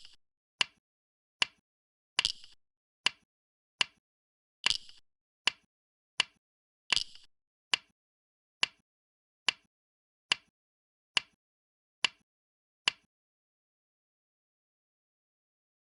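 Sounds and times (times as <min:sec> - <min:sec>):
go stones clacking on board: 0:02.2 - 0:02.6.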